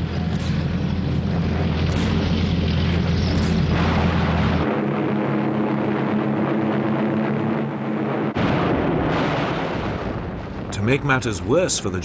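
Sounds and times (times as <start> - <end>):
heavy engines droning: 0.0 - 8.4
rumbling background: 0.0 - 12.0.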